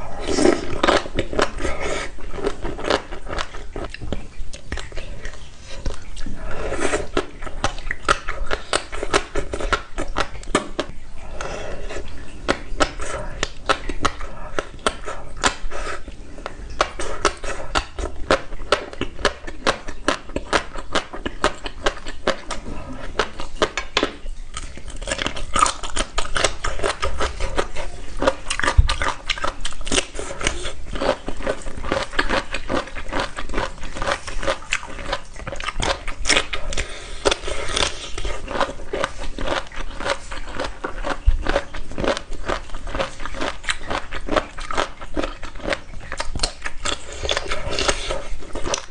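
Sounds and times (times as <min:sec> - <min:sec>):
crunching crisp food: 0:11.9 - 0:48.9.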